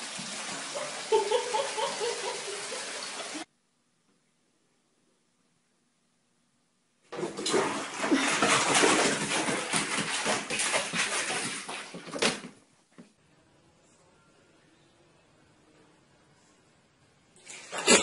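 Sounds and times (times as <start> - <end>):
cat splashing in water: 7.2 - 12.5.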